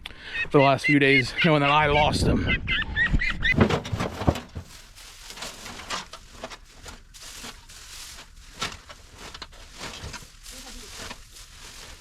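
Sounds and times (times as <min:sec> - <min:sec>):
rustling and crackling: 0:03.5 - 0:12.0
small clicks and scrapes: 0:03.9 - 0:11.4.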